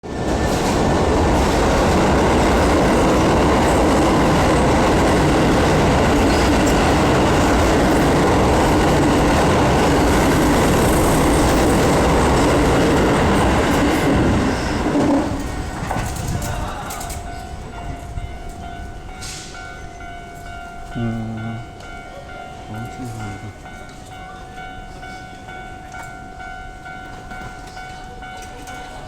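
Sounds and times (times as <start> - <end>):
train wheels rushing on rail: 0.0 - 20.6.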